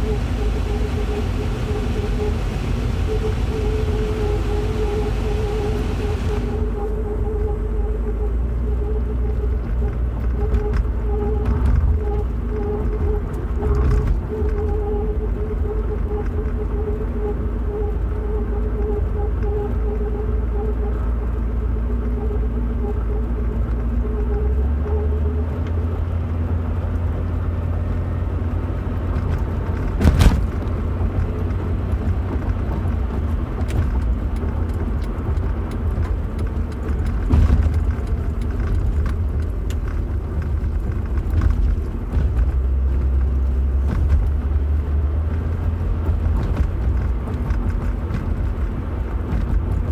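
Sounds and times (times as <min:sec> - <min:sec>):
steady hum: 0:00.0 - 0:27.7
vehicle rumble from inside: 0:00.0 - 0:49.9.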